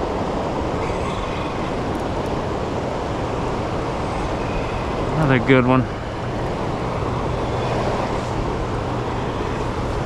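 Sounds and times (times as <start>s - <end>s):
rushing river current: 0.0s - 10.0s.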